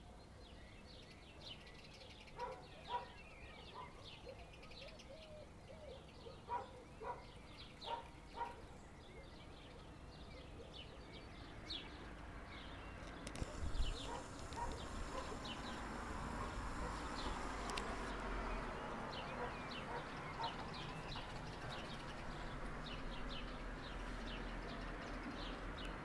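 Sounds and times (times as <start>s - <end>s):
birds chirping and calling: 0.5s - 26.0s
rushing noise: 13.3s - 19.3s
clicks: 17.2s - 18.1s.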